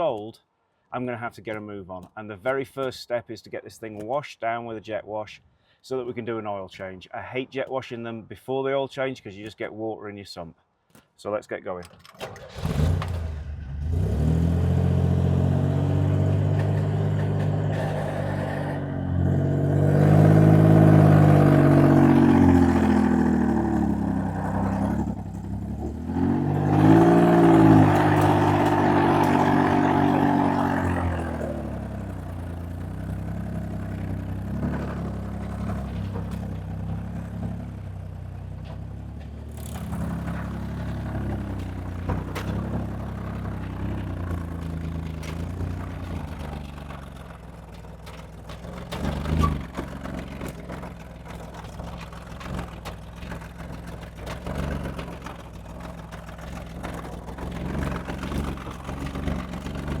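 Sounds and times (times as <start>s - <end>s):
vehicle engine running: 13.0s - 60.0s.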